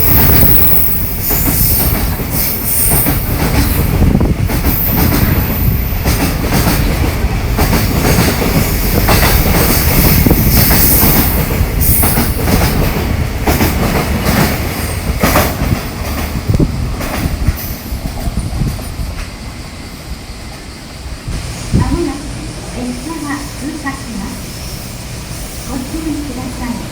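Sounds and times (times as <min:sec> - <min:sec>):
train wheels clacking: 0:00.0 - 0:19.6.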